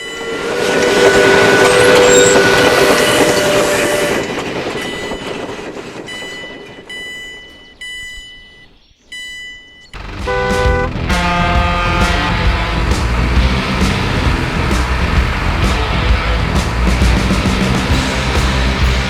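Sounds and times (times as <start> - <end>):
train horn: 0.0 - 4.4, 10.0 - 15.9
train rushing on rails: 0.0 - 7.5, 10.0 - 19.0
loud stacked tones: 0.0 - 19.0.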